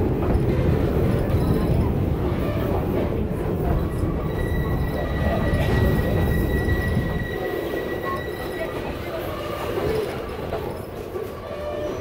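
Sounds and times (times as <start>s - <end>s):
train rumbling on track: 0.0s - 12.0s
high-pitched wheel squeal: 3.9s - 9.9s.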